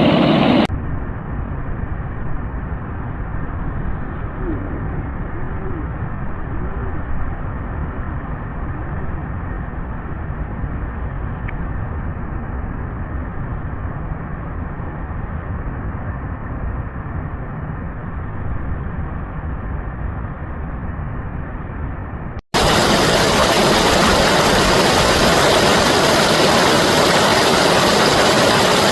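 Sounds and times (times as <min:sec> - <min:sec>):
reversed flowing water rushing: 0:22.6 - 0:28.9.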